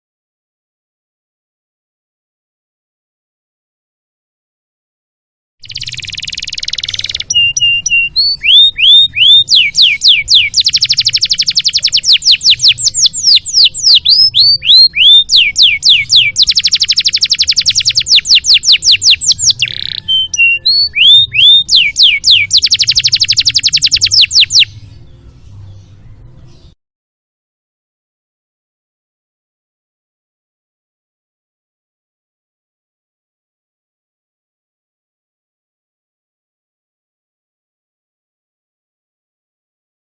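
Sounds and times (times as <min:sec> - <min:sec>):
canary singing: 0:05.6 - 0:26.8.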